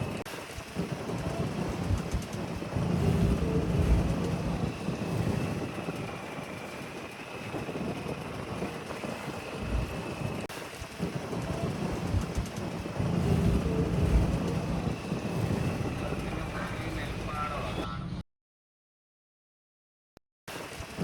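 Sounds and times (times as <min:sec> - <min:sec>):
boat engine rumbling: 0:00.0 - 0:18.2
faint steady whine: 0:01.3 - 0:10.5, 0:11.6 - 0:18.2.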